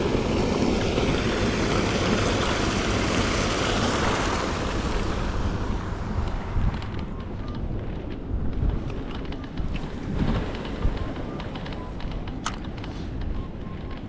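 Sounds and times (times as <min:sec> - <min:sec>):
rush of falling water: 0:00.0 - 0:06.1
wind buffeting microphone: 0:00.0 - 0:14.0.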